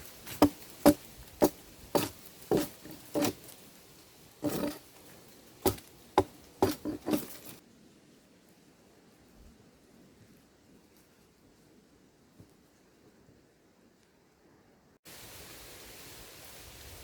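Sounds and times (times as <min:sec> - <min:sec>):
dull sharp thuds: 0:00.3 - 0:03.4, 0:05.6 - 0:07.6.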